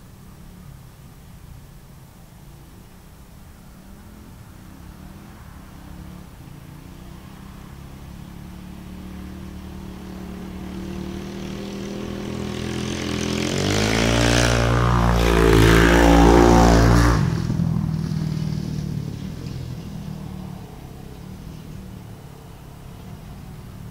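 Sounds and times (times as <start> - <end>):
dirt bike engine revving: 6.8 - 22.0.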